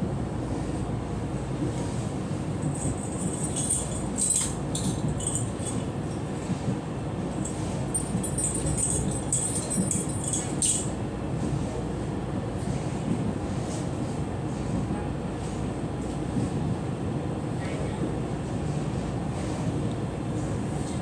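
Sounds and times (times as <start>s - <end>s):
train carriage rumbling: 0.0s - 21.0s
high jingling rattles: 2.8s - 6.2s, 7.9s - 10.9s.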